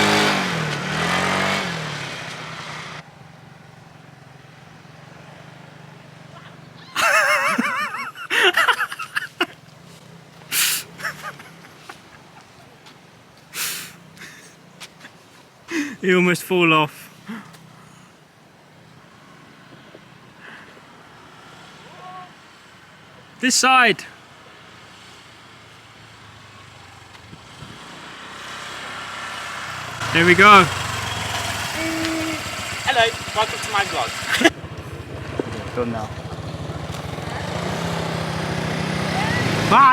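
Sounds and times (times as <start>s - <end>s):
small motorbike engine hum: 0.0s - 14.7s, 24.3s - 39.9s
breathy gasps: 15.7s - 16.0s, 17.2s - 18.1s
person crying out: 31.7s - 32.5s, 39.2s - 39.9s.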